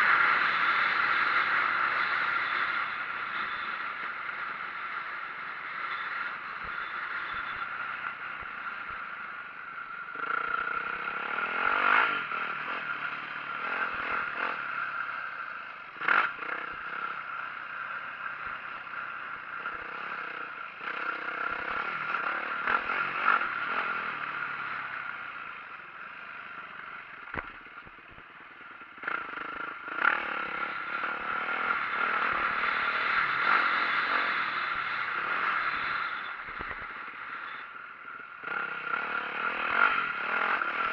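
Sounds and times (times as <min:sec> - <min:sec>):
dirt bike engine revving: 0:10.2 - 0:25.6, 0:29.0 - 0:37.7, 0:38.4 - 0:40.9
knocks and clatter from bike: 0:27.2 - 0:30.3, 0:36.4 - 0:37.0.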